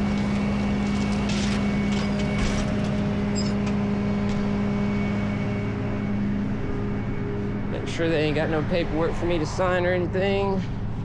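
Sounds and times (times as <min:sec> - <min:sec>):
truck engine idling: 0:00.0 - 0:04.0.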